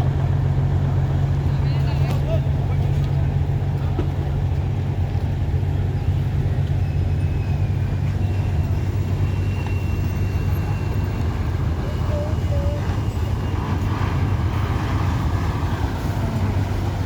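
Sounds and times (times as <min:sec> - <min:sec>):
large vehicle engine humming: 0:00.0 - 0:17.0
faint high whine: 0:05.9 - 0:17.0.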